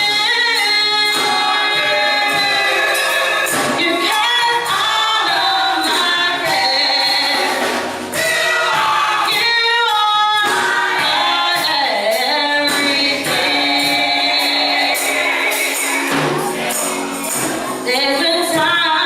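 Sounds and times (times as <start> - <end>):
gospel choir singing: 0.0 - 19.0.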